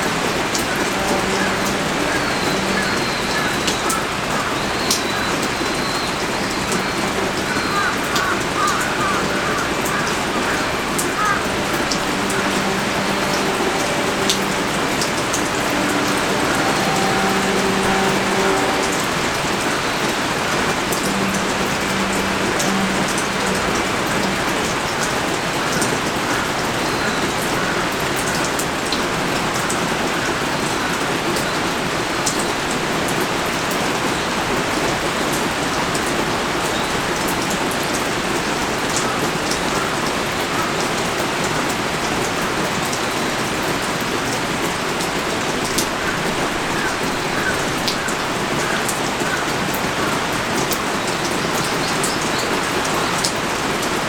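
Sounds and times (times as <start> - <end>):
raindrops ticking: 0.0 - 29.1
heavy rain pouring: 0.0 - 54.0.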